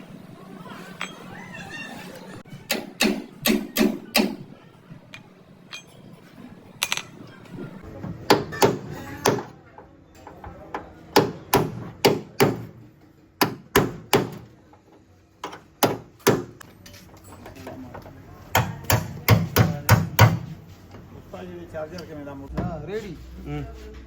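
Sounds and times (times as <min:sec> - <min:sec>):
hammer on car bodywork: 0:02.7 - 0:04.4, 0:08.2 - 0:09.6, 0:10.7 - 0:12.8, 0:13.4 - 0:14.5, 0:15.4 - 0:16.6, 0:18.5 - 0:20.6.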